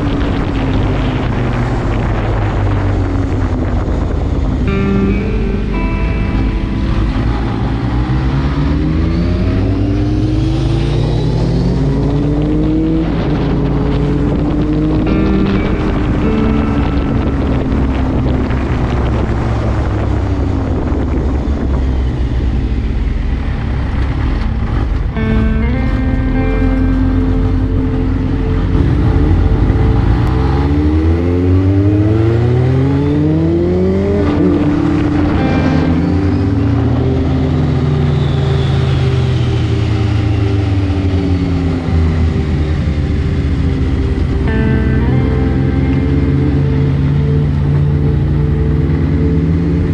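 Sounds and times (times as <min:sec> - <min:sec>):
motorcycle engine accelerating: 0:00.0 - 0:49.9
wind noise: 0:00.0 - 0:49.9.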